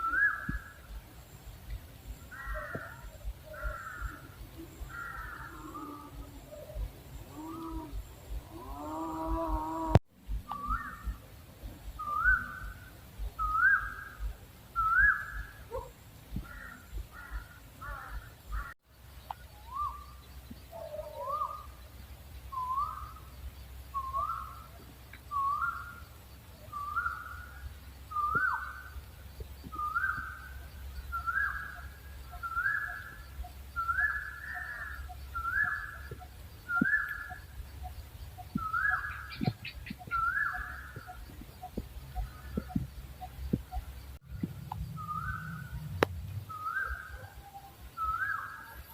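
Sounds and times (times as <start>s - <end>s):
owl whistled call: 0.0s - 0.8s, 2.3s - 11.3s, 11.9s - 15.9s, 22.5s - 23.2s, 23.9s - 26.0s, 26.7s - 28.9s, 29.7s - 43.8s, 45.0s - 48.9s.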